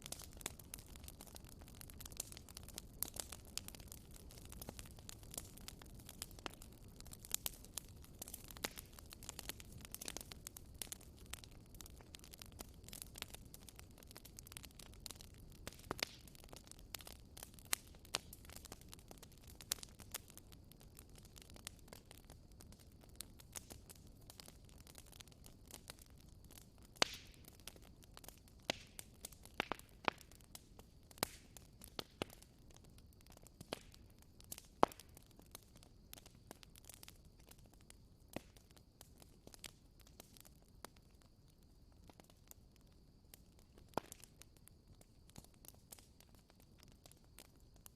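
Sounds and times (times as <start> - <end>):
flames rushing: 0.0 - 20.4
campfire crackling pops: 0.0 - 47.9.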